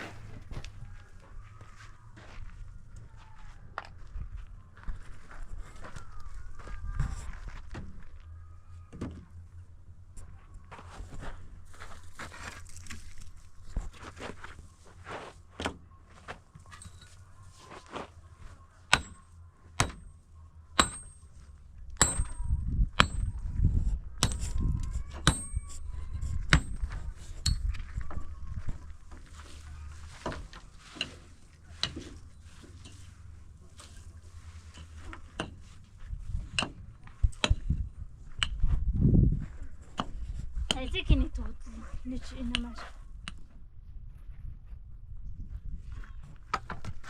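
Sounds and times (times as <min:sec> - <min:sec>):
hammer blows with metallic ring: 0:20.8 - 0:23.4.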